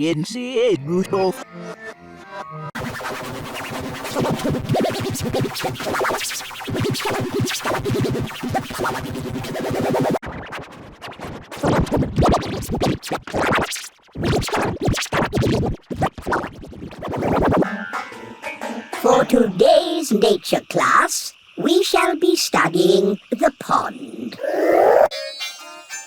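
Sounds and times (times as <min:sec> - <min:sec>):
stuttering pitch-warped cartoon audio: 0:04.1 - 0:10.6, 0:11.6 - 0:17.7, 0:19.0 - 0:25.4.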